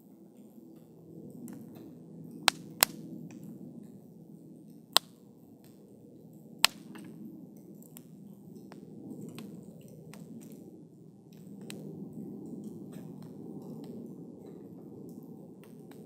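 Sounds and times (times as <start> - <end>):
campfire flames crackling: 0.4 - 16.0
burning wood popping: 1.5 - 4.0, 4.9 - 5.9, 6.6 - 10.6, 11.3 - 16.0.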